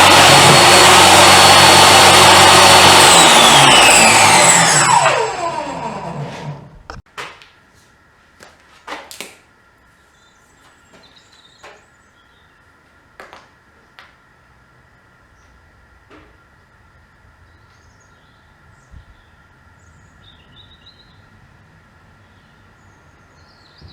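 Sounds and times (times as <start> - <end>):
table saw winding down: 0.0 - 7.0.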